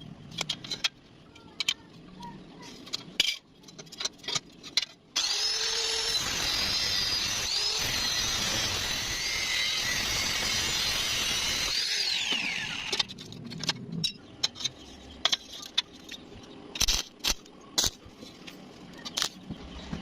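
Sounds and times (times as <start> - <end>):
power tool hissing: 5.2 - 12.9.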